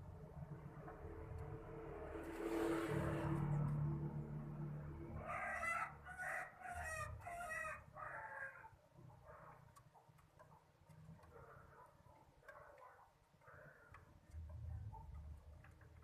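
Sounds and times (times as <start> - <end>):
low engine hum: 0.0 - 5.2.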